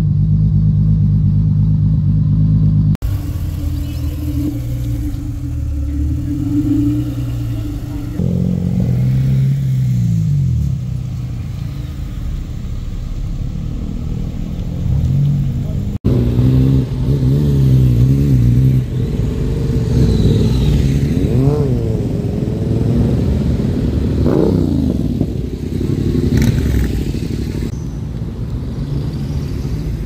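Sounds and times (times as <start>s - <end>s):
car engines rumbling: 0.0s - 30.0s
engine throttle blips: 0.7s - 9.3s.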